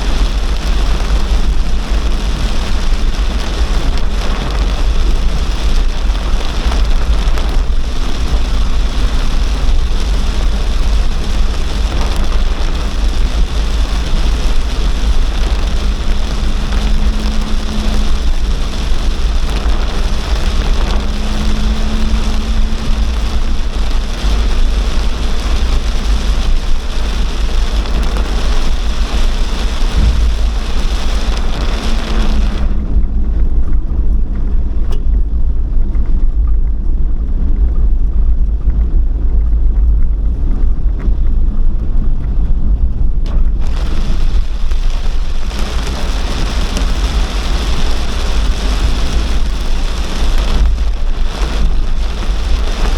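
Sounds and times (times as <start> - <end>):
constant deep rumble: 0.0 - 52.9
torrential rain hiss: 0.0 - 52.9.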